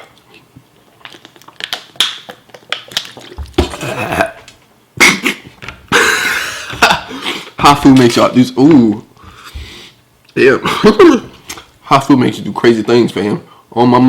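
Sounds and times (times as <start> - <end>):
eating clicks and smacks: 0.0 - 3.8
man breathing hard: 9.2 - 10.0.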